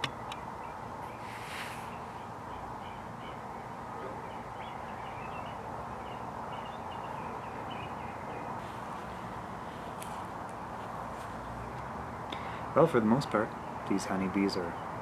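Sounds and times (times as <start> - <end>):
small birds chirping: 0.0 - 15.0
steady background hiss: 0.0 - 15.0.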